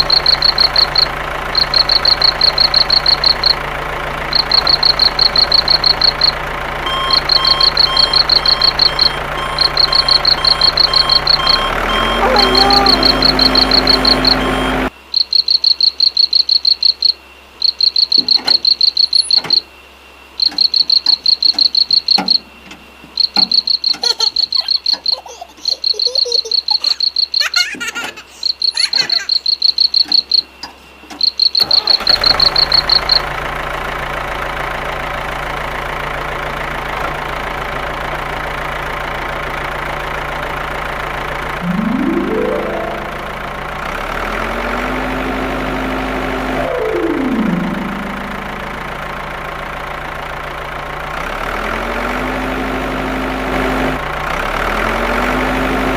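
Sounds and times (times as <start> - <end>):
rapid high-pitched chirping: 0.0 - 3.6, 4.3 - 6.3, 6.9 - 14.5, 23.2 - 27.6, 28.3 - 30.5.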